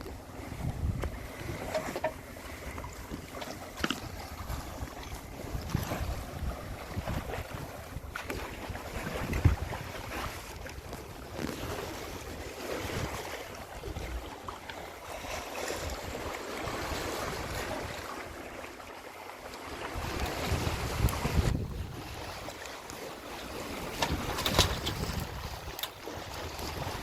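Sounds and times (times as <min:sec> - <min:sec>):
wind buffeting microphone: 0:00.0 - 0:14.3, 0:19.8 - 0:22.6, 0:23.5 - 0:27.0
water rushing along hull: 0:00.0 - 0:27.0.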